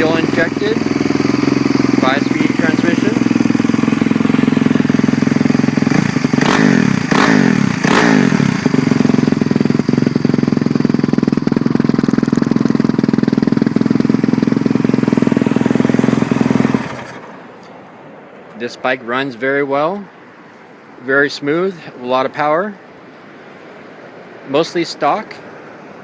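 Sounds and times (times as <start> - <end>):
motorcycle engine idling and revving: 0.0 - 18.1.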